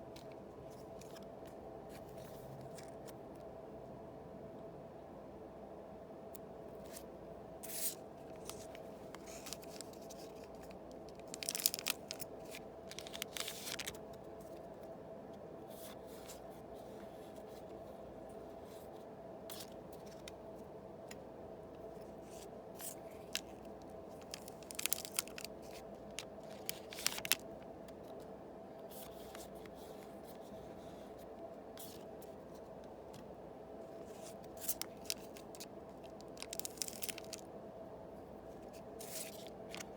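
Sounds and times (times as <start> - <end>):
foil wrappers tearing and crinkling: 7.7 - 14.0, 24.2 - 27.4, 34.6 - 37.4.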